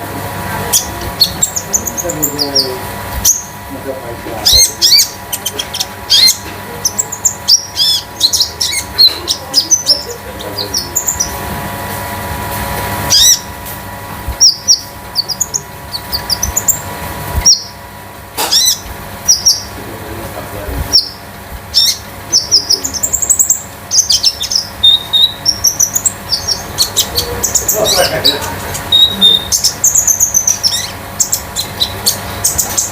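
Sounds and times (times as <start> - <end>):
songbird chirps and whistles: 20.9 - 28.1, 28.9 - 32.9.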